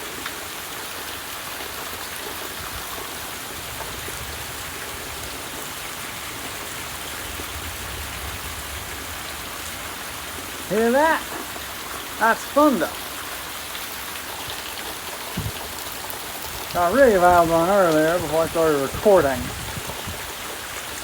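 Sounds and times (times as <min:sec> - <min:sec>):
heavy rain downpour: 0:00.0 - 0:21.0
low rumble of thunder: 0:03.5 - 0:10.6.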